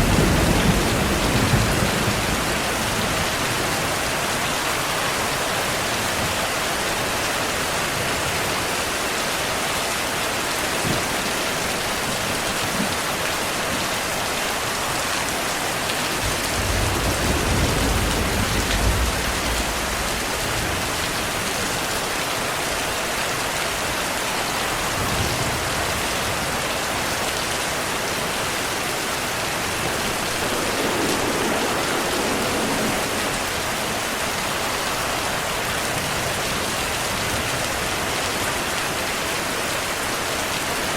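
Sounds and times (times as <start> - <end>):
thunder rumbling: 0.0 - 5.4, 16.1 - 21.9, 23.4 - 37.8
heavy rain hissing: 0.0 - 40.9.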